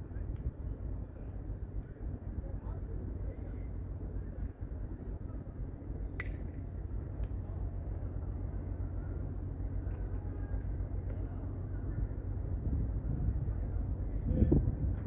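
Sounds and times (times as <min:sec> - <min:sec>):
wind buffeting microphone: 0:10.2 - 0:15.0.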